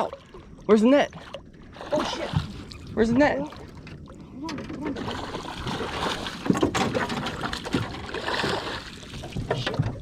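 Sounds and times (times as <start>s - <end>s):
water splashing and sloshing: 0.0s - 10.0s
knocks against boat: 6.4s - 8.1s, 9.2s - 10.0s.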